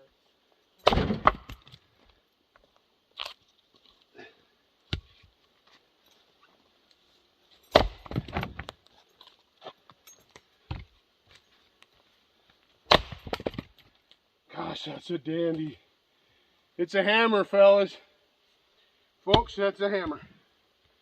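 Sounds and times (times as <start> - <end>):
firewood knocking and clattering: 7.7 - 8.8.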